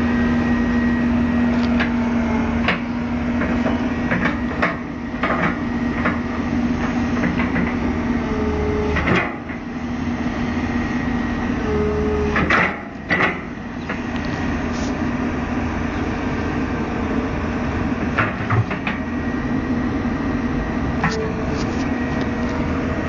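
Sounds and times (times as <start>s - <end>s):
excavator engine running: 0.0s - 23.0s
sharp knocks and clanks: 18.1s - 19.0s.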